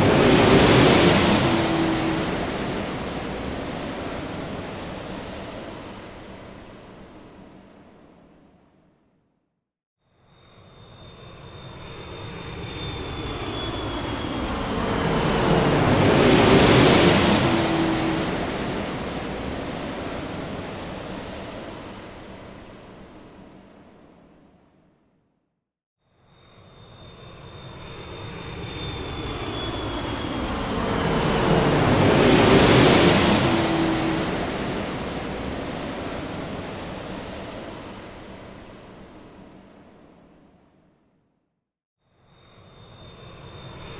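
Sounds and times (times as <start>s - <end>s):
jet engine and airflow rush: 0.0s - 8.9s, 10.8s - 25.0s, 26.8s - 41.2s
faint high whine: 26.3s - 40.6s
airplane engine cabin hum: 28.8s - 38.1s.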